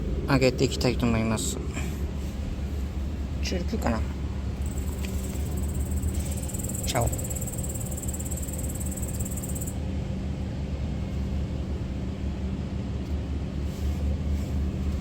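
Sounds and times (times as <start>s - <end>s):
low outdoor rumble: 0.0s - 15.0s
high insect trill: 4.6s - 9.8s.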